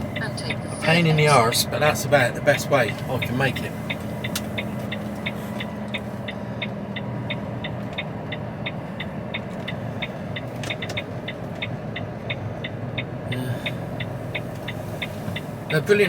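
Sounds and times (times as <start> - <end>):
diesel engine humming: 0.0 - 16.0
turn signal ticking: 0.0 - 16.0.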